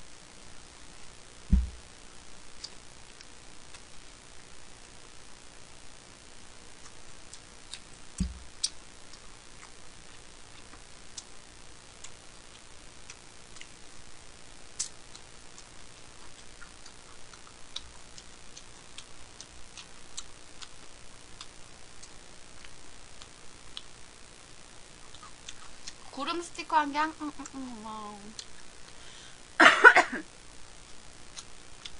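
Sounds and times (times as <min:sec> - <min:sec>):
low thump: 0:01.5 - 0:01.8
chewing and chopstick clicks: 0:30.9 - 0:31.9.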